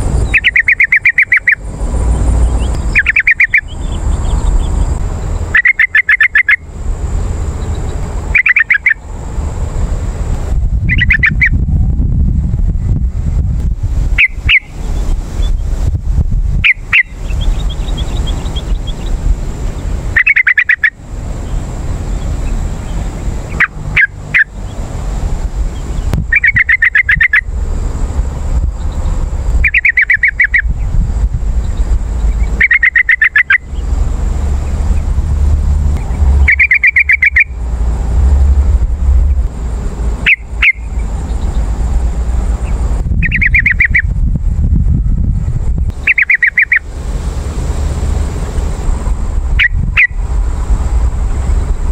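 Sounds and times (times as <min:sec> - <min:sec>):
steady low rumble: 0:00.0 - 0:51.9
bubbly bird song: 0:00.2 - 0:01.6, 0:02.4 - 0:06.6, 0:07.7 - 0:09.0, 0:10.9 - 0:11.6, 0:14.2 - 0:15.7, 0:16.6 - 0:19.2, 0:20.2 - 0:24.8, 0:25.8 - 0:27.4, 0:28.8 - 0:30.7, 0:31.6 - 0:33.9, 0:36.4 - 0:37.6, 0:40.3 - 0:41.6, 0:43.2 - 0:44.1, 0:46.0 - 0:46.8, 0:49.6 - 0:50.2.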